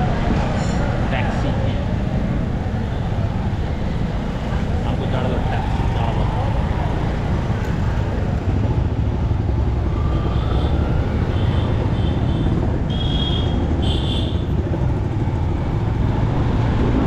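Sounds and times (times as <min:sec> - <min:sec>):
motorcycle engine rumble: 0:00.0 - 0:17.0.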